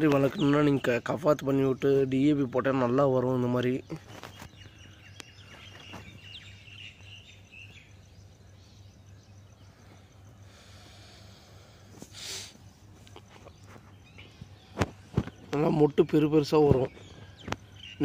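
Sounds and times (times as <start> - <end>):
small birds chirping: 0.0 - 18.0
steady low hum: 4.6 - 16.1
short hiss: 10.5 - 12.6.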